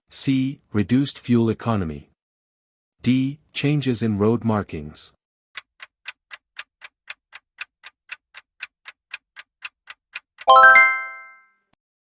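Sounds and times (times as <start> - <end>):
clock ticking: 5.6 - 11.0
bright chime: 10.5 - 11.5.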